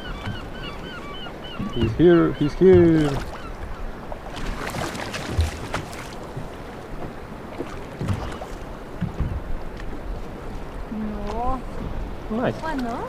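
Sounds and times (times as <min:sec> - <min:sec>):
water splashing: 0:00.0 - 0:13.0
knocks against kayak hull: 0:02.6 - 0:03.4.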